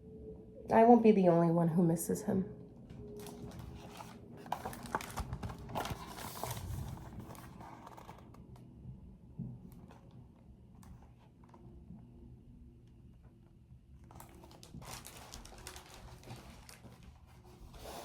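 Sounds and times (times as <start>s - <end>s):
paper pages rustling and turning: 3.2s - 8.4s, 14.0s - 18.0s.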